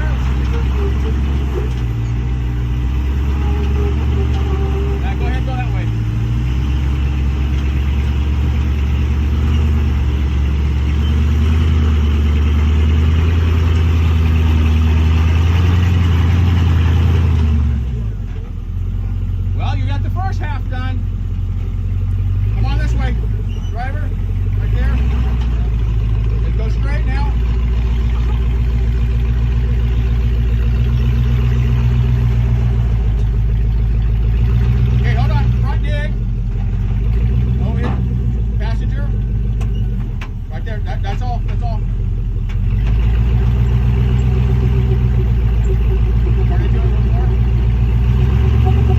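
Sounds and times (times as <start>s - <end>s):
engine low drone: 0.0s - 48.9s.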